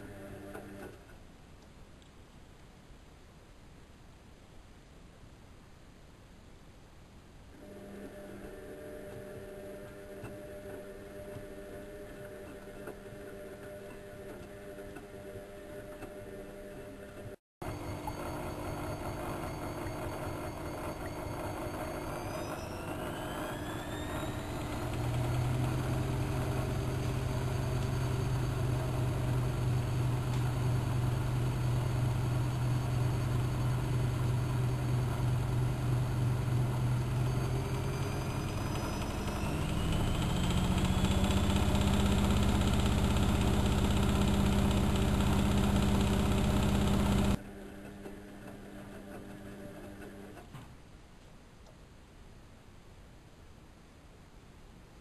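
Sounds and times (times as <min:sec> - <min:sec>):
washing machine motor speeding up: 0:17.6 - 0:50.3.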